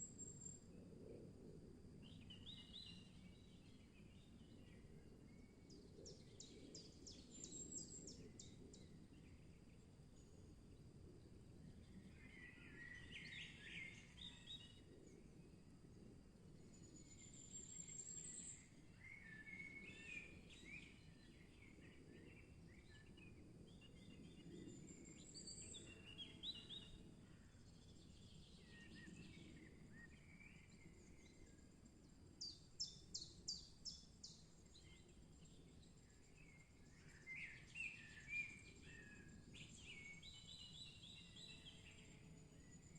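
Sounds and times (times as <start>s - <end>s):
birdsong: 16.7s - 27.1s, 32.4s - 42.9s.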